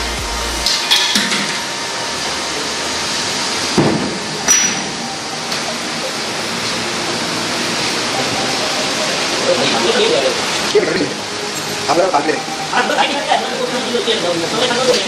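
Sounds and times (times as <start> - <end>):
steady rushing hiss: 0.0 - 15.0
tools knocking and clinking: 3.8 - 5.0.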